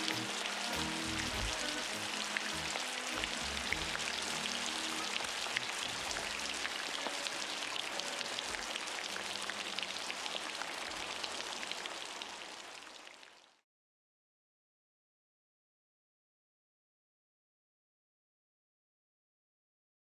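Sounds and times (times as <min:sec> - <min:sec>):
low sustained notes: 0:00.0 - 0:10.0
heavy rain hissing: 0:00.0 - 0:13.0
raindrops pattering on hard surface: 0:00.0 - 0:13.6.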